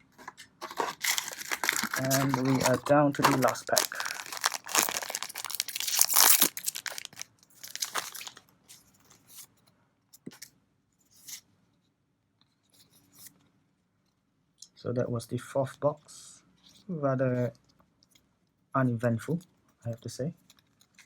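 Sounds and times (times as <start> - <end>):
cards rustling and tapping: 0.0 - 8.4
foil wrapper tearing and crinkling: 0.6 - 8.4.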